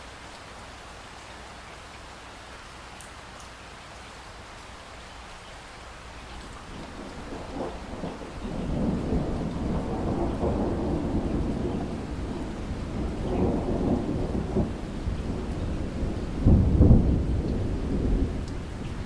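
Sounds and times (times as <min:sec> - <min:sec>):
steady rain: 0:00.0 - 0:19.0
thunder rumbling: 0:06.4 - 0:19.0.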